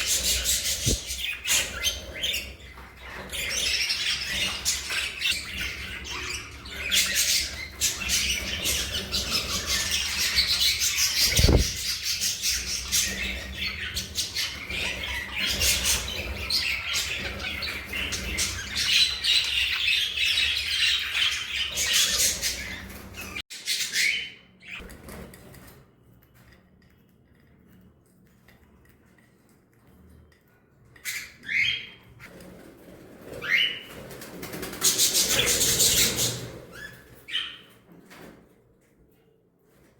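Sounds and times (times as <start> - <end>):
budgerigars chattering and squawking: 0.0 - 24.8, 34.6 - 37.6.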